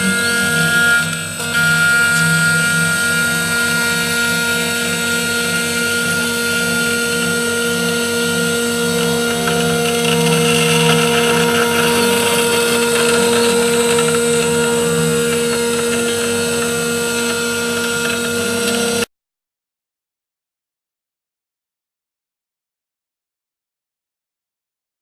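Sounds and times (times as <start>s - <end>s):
cutter milling aluminium hiss: 0.0s - 19.0s
router spindle whining: 0.0s - 19.1s.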